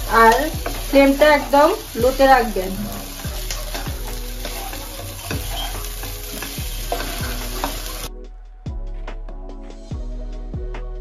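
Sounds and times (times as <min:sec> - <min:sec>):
food sizzling in a pan: 0:00.0 - 0:08.1
soft background music: 0:00.0 - 0:11.0
spatula stirring and scraping: 0:00.1 - 0:08.1.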